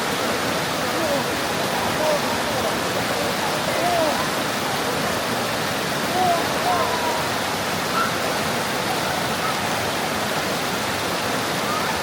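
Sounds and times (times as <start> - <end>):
water rushing in stream: 0.0 - 12.0.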